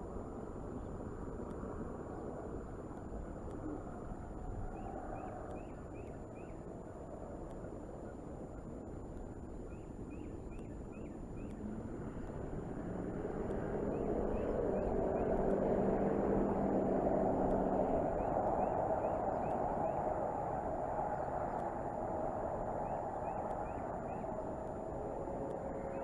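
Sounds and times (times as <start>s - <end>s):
vehicle engine running: 11.3s - 26.0s
faint high chirps: 17.4s - 26.0s.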